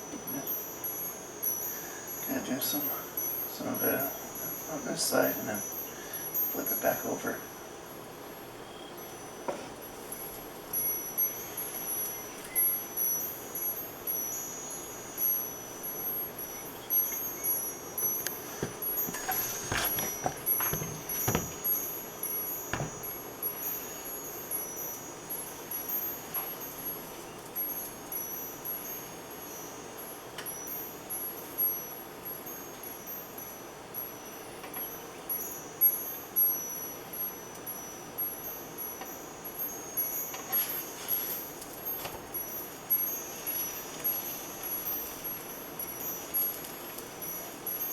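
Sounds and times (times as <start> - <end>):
wind chimes ringing: 0.0 - 8.0, 8.9 - 47.9
knocks: 18.6 - 21.6, 22.7 - 23.0.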